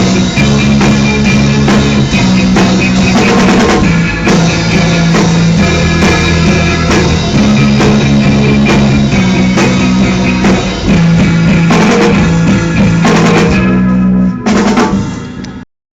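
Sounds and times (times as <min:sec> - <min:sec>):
drum kit hits: 0:00.0 - 0:15.6
rock band playing: 0:00.0 - 0:15.6.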